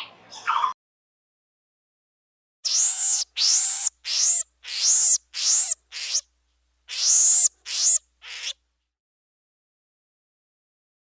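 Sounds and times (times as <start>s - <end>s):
bird harsh rasping calls: 2.7s - 6.2s, 6.9s - 8.6s.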